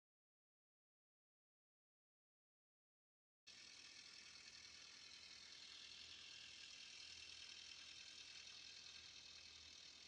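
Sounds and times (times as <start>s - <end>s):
faint tractor engine running: 3.5s - 10.0s.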